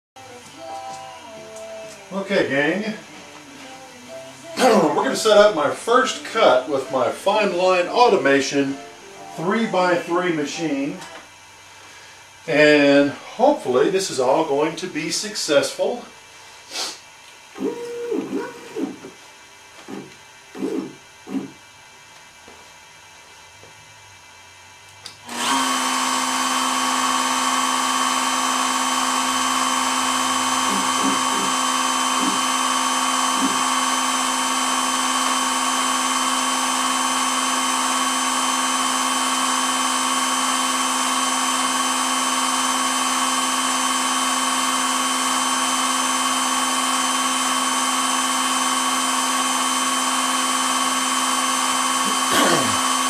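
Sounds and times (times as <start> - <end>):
router spindle whine: 17.6 - 19.2, 25.3 - 53.0.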